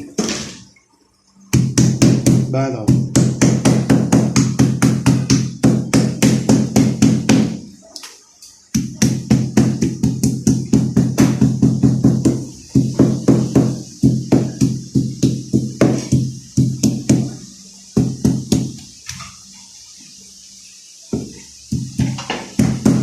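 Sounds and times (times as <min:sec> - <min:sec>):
electronic drum beat: 0:01.5 - 0:07.6, 0:08.7 - 0:18.8, 0:21.1 - 0:23.0.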